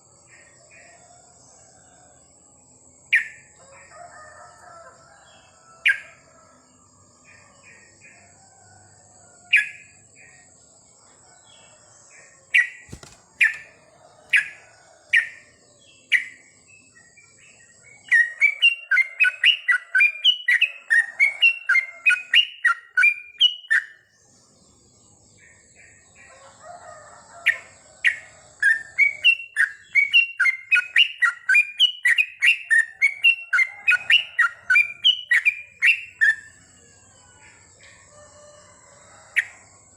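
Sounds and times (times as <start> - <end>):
bird fast chattering runs: 12.8 - 14.5.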